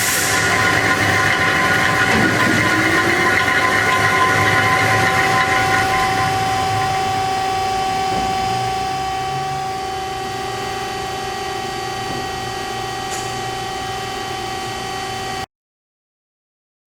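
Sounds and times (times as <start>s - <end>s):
metal cutting hiss: 0.0s - 3.5s
band saw running with steady whine: 0.0s - 15.5s.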